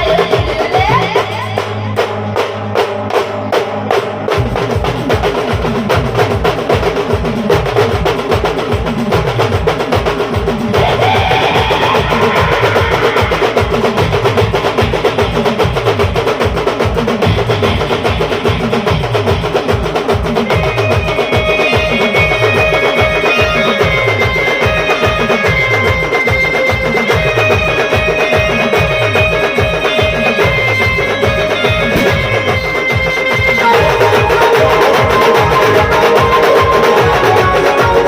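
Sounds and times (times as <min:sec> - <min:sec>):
fast steady drumming: 0:00.0 - 0:38.0
deep drum strokes: 0:31.3 - 0:33.3.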